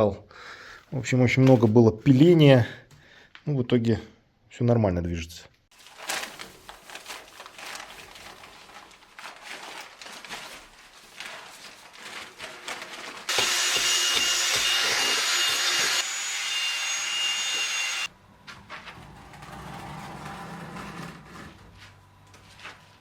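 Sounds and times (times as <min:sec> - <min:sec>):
power tool whining: 0:13.3 - 0:18.1.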